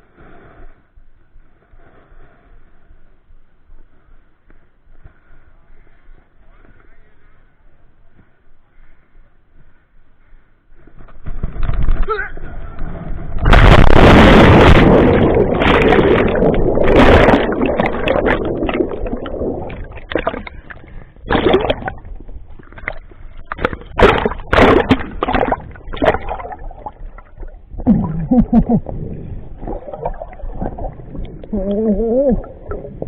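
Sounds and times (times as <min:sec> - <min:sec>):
water churning: 0:12.8 - 0:33.0
water splashing and sloshing: 0:12.8 - 0:33.0.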